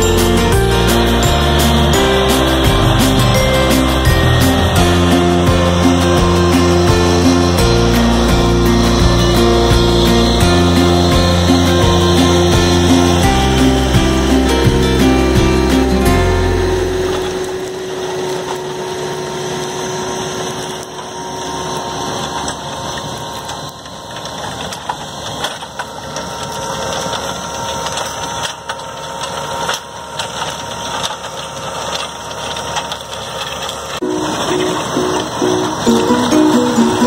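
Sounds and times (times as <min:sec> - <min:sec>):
music: 0:00.0 - 0:18.2, 0:34.0 - 0:37.0
soil and straw crunching: 0:00.0 - 0:37.0
tractor engine running: 0:00.0 - 0:37.0.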